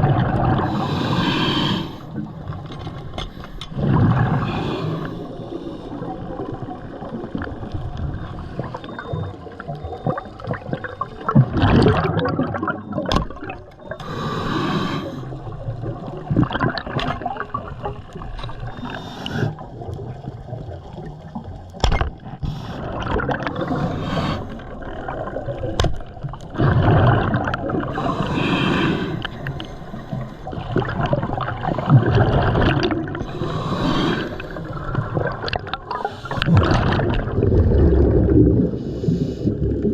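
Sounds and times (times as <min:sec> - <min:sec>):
water gurgling and sloshing: 0:00.0 - 0:39.9.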